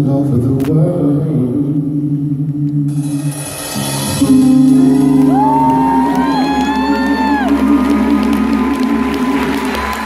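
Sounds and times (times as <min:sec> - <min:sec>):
live pop song with band: 0:02.5 - 0:10.0
audience whooping: 0:04.6 - 0:10.0.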